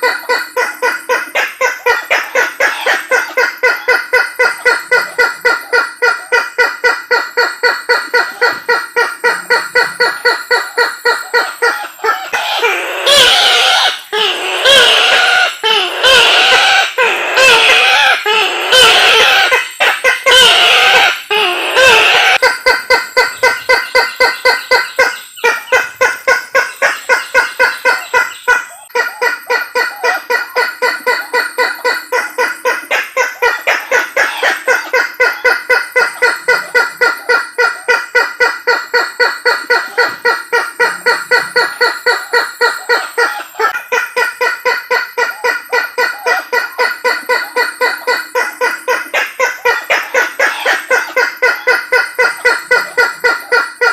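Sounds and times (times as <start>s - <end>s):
bird calling: 0.0s - 53.9s.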